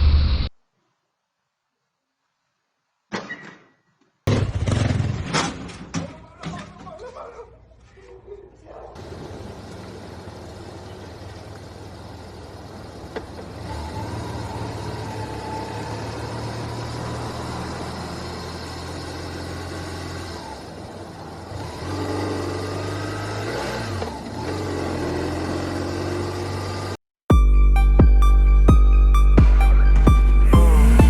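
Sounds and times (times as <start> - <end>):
vehicle engine running: 8.9 - 27.0, 29.4 - 31.0.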